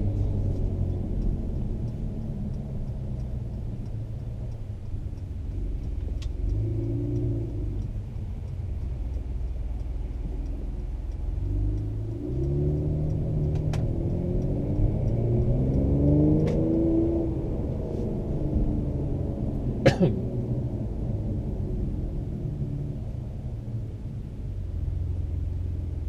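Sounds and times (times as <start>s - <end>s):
sharp clicks: 0.0s - 16.9s
car engine droning in cabin: 0.0s - 26.0s.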